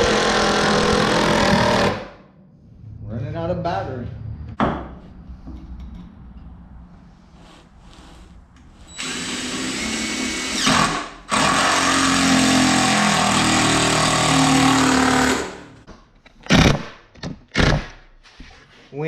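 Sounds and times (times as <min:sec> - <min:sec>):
cordless drill whining: 0:08.9 - 0:12.8.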